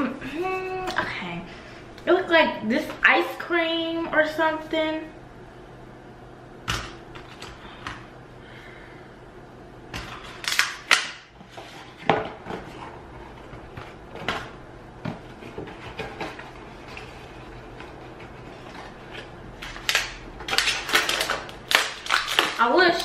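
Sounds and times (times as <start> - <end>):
clicks of objects and packaging: 17.8 - 23.0.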